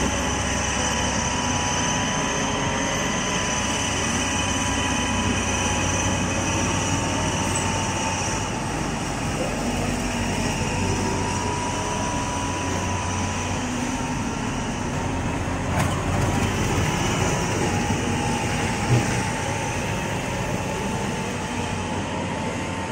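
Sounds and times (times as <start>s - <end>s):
train rumbling on rails: 0.0s - 22.9s
train whine: 0.0s - 22.9s.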